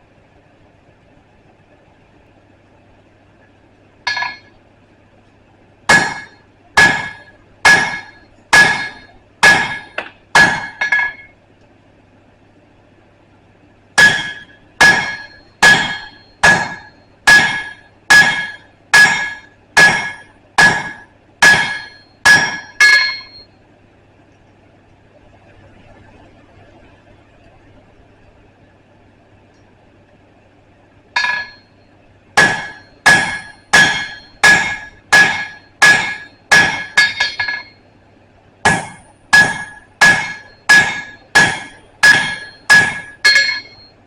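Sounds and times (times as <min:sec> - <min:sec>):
hammer striking steel on anvil: 0:04.1 - 0:04.6, 0:05.9 - 0:11.3, 0:14.0 - 0:23.5, 0:31.2 - 0:31.8, 0:32.4 - 0:37.8, 0:38.7 - 0:43.9.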